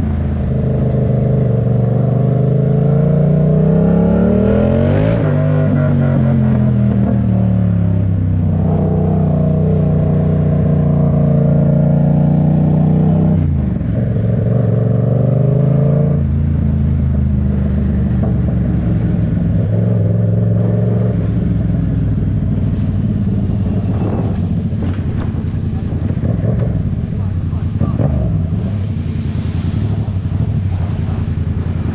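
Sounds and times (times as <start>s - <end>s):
vehicle engine running: 16.2s - 31.9s.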